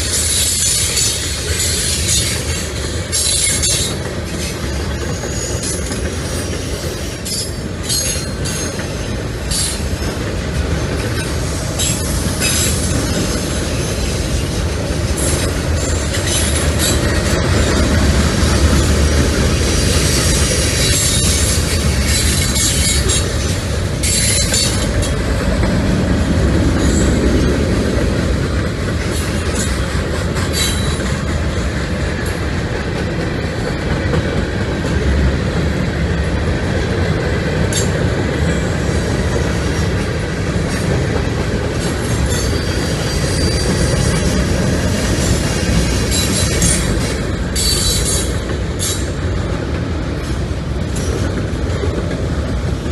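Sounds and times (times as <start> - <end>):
steel wheels rumbling on rails: 0.0 - 52.9
high-pitched wheel squeals: 42.3 - 44.2.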